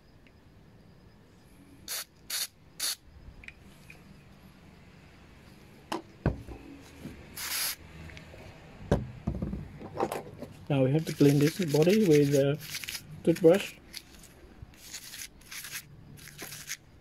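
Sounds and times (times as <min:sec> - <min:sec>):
aerosol can spraying: 0:01.9 - 0:03.0, 0:07.4 - 0:07.8, 0:11.1 - 0:14.2, 0:14.8 - 0:16.8.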